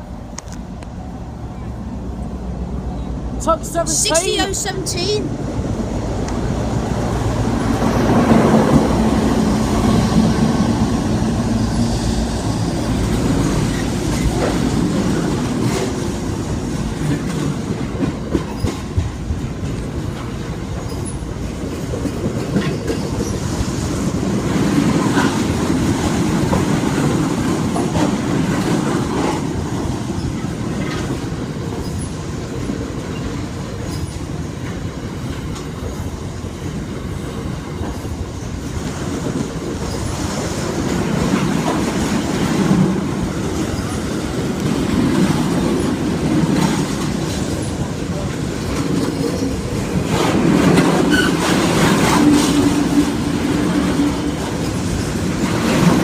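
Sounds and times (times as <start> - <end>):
diesel locomotive engine: 0.0 - 56.0
freight wagons clicking over rail joints: 12.8 - 56.0.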